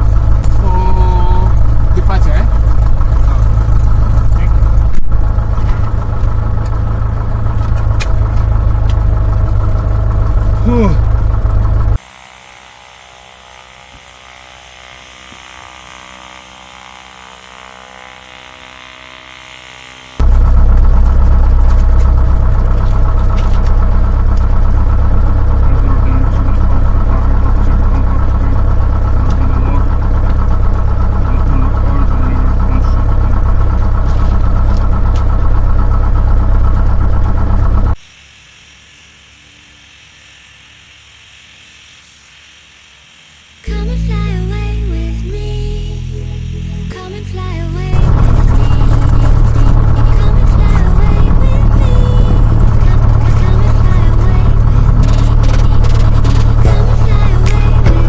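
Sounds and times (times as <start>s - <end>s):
aircraft piston engine running: 0.0s - 38.0s, 43.2s - 58.0s
faint hiss: 38.0s - 45.7s.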